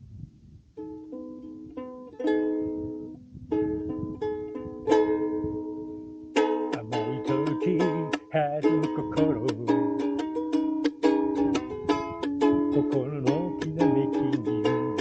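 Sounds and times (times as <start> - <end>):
ukulele playing: 0.8 - 15.0.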